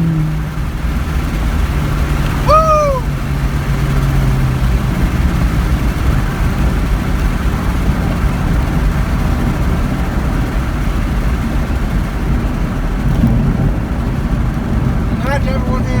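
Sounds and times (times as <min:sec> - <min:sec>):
car engine rumble from cabin: 0:00.0 - 0:16.0
road noise: 0:00.0 - 0:16.0.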